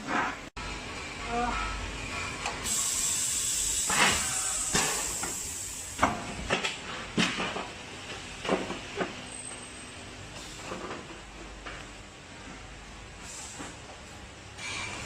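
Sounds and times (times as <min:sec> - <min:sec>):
machinery hiss: 0:02.6 - 0:06.0.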